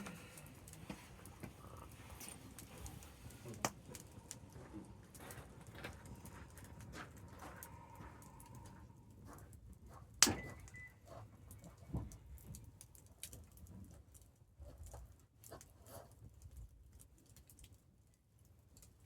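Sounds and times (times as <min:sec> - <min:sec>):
campfire crackling: 0:00.0 - 0:14.3
loud sharp fire pop: 0:10.2 - 0:10.6.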